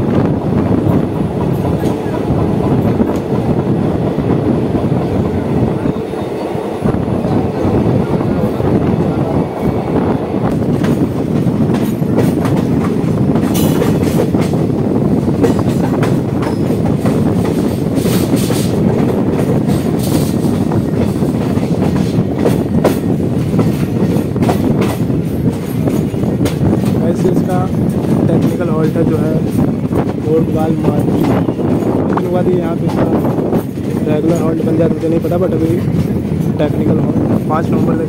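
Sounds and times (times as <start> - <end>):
train wheels rumbling on rails: 0.0 - 38.0
wheels clacking over rail joints: 10.5 - 38.0.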